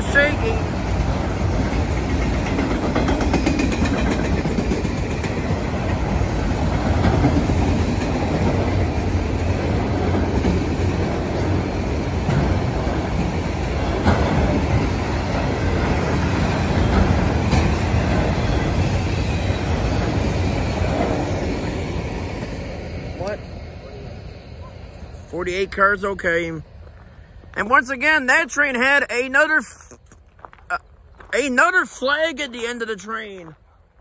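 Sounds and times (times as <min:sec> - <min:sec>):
wheels clacking over rail joints: 0:00.0 - 0:23.5
freight train wheels rumbling on rails: 0:00.0 - 0:28.8.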